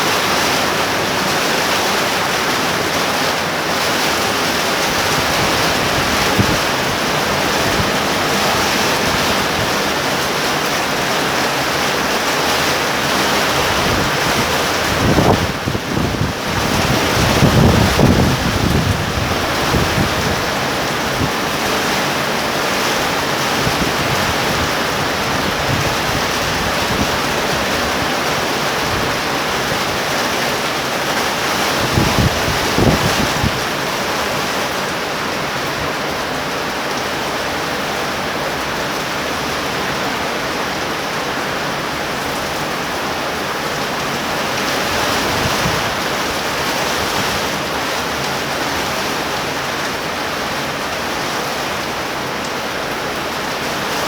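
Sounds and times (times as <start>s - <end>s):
heavy rain hissing: 0.0s - 54.0s
wind buffeting microphone: 3.4s - 36.1s, 39.8s - 49.7s.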